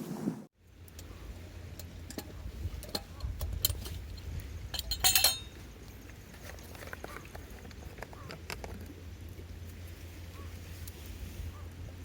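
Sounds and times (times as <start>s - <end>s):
low rumble of wind: 0.0s - 12.0s.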